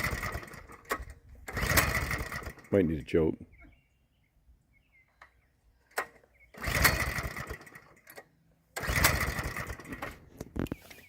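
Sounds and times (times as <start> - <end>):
pull starter cranking engine: 0.0 - 2.8, 5.9 - 11.0.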